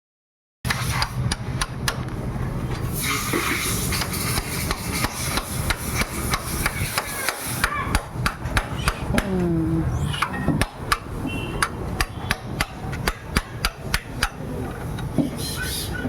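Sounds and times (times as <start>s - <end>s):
short hiss: 2.9s - 5.4s
hammer striking metal: 10.1s - 14.5s.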